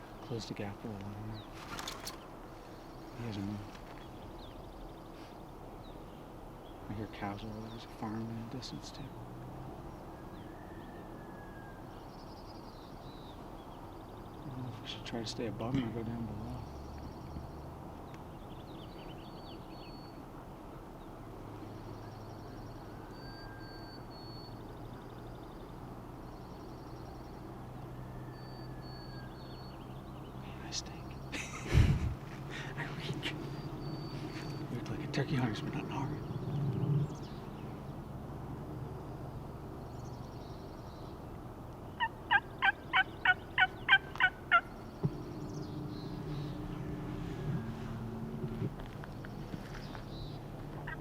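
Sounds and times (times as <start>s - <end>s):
songbirds calling: 0.0s - 51.0s
turkey yelps: 42.0s - 44.7s.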